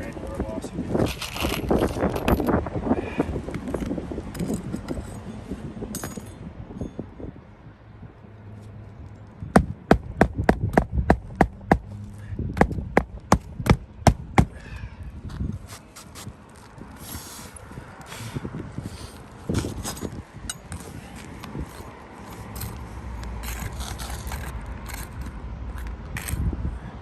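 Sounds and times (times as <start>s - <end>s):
hammer driving nails into shingles: 9.6s - 11.9s, 12.6s - 14.6s
soft handling rustle: 15.2s - 26.4s.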